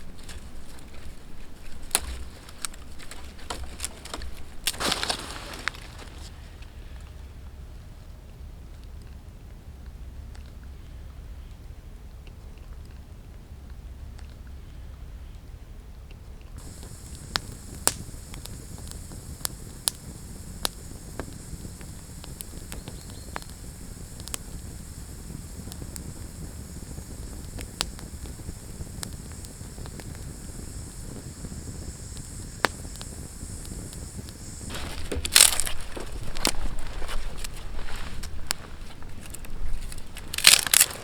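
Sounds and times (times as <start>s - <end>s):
rustling crunch: 0.0s - 7.2s, 32.1s - 41.0s
wood campfire crackling: 0.0s - 7.4s, 16.6s - 41.0s.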